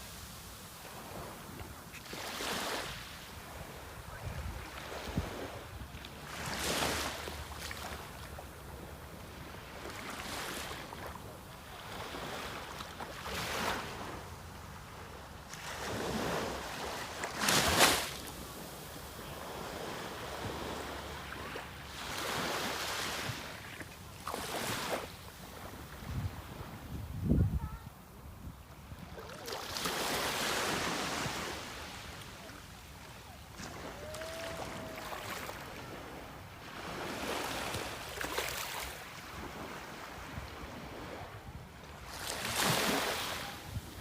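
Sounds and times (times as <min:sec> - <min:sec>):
sea waves breaking: 0:00.0 - 0:08.3, 0:15.5 - 0:25.8, 0:29.0 - 0:41.4, 0:42.0 - 0:44.0
wind buffeting microphone: 0:26.0 - 0:28.6.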